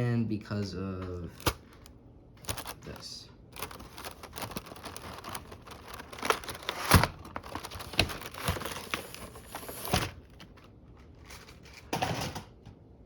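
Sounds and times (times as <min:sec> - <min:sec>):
packaging crinkling: 0:01.3 - 0:11.8.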